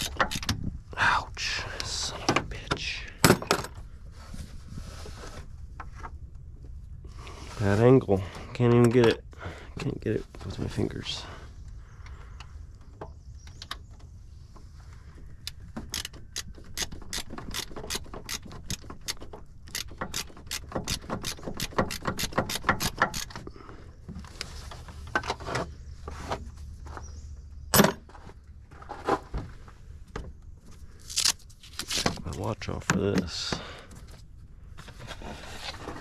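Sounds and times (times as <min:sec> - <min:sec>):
socket ratchet clicking: 0:00.0 - 0:00.5, 0:15.5 - 0:23.4.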